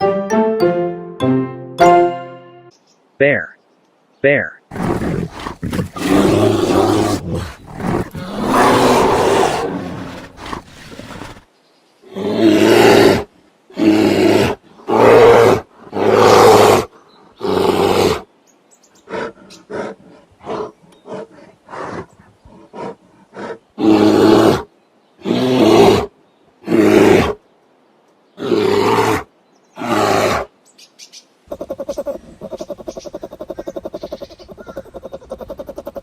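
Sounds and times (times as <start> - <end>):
bear grunting: 4.7 - 11.4, 31.5 - 36.0
bear roaring and growling: 4.7 - 11.4, 12.1 - 18.2.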